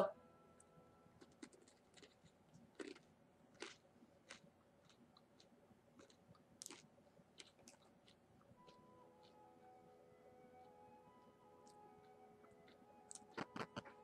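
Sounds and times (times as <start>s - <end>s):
rice cracker crunching and chewing: 1.2s - 8.2s, 12.6s - 14.0s.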